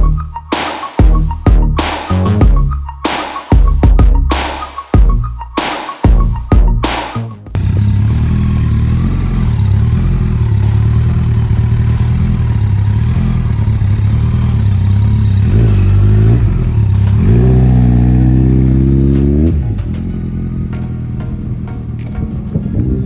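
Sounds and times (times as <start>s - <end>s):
motorcycle engine running: 7.6s - 23.0s.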